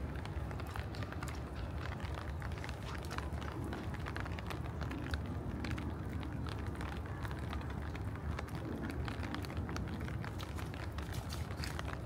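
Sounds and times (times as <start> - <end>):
raindrops clicking: 0.0 - 12.0
steady low rumble of rain: 0.0 - 12.0.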